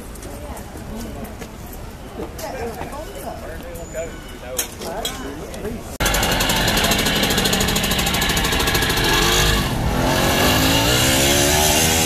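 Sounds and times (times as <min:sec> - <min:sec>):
engine revving: 0:06.0 - 0:12.0.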